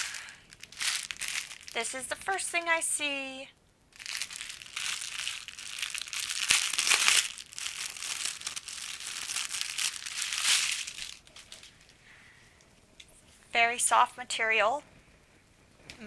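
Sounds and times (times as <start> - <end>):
packaging crinkling and rustling: 0.0 - 2.6, 3.9 - 12.1.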